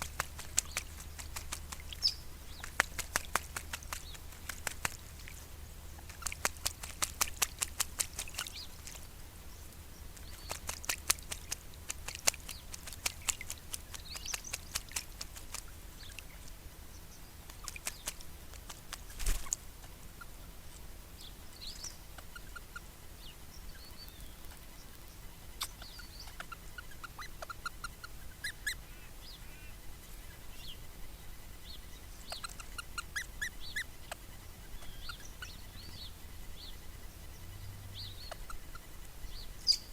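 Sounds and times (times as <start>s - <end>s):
short chirping bird calls: 0.0s - 4.2s, 21.2s - 30.8s, 31.6s - 39.9s
parrots splashing in water: 0.0s - 9.1s, 10.2s - 16.5s, 17.5s - 19.6s.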